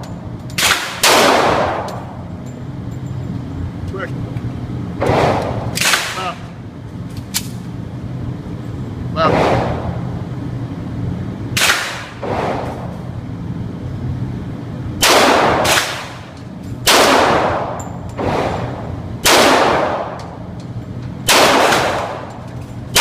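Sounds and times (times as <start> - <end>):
pistol shots: 0.6 - 2.0, 5.0 - 6.5, 11.6 - 12.9, 15.0 - 20.4, 21.2 - 23.0.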